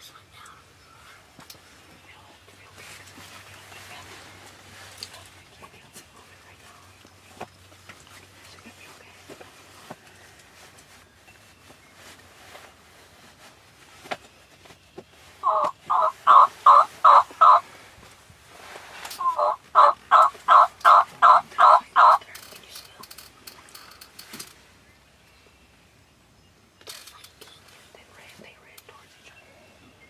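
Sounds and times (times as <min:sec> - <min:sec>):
turkey yelping: 0:15.4 - 0:17.6, 0:19.2 - 0:22.2.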